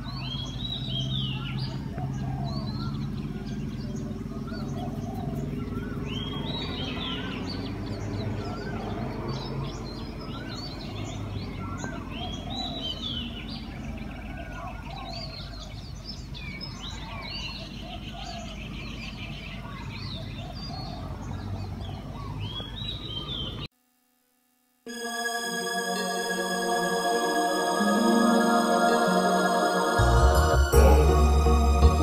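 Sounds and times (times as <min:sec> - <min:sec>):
birds chirping and calling: 0:00.0 - 0:23.7.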